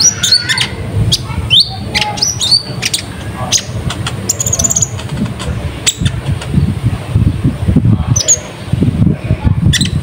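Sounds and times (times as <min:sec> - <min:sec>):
bird chirping: 0:00.0 - 0:06.7
steady low rumble: 0:00.0 - 0:10.0.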